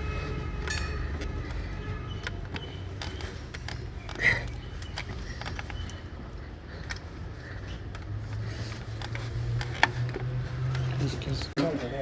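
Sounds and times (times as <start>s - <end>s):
metallic clicks and knocks: 0.6s - 6.0s.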